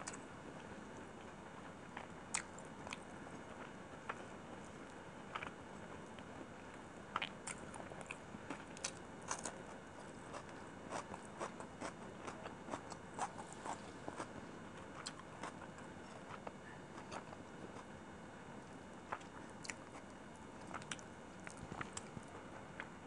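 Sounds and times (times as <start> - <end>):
person chewing food: 1.9 - 4.2, 4.8 - 5.6, 7.1 - 17.9, 19.1 - 22.9.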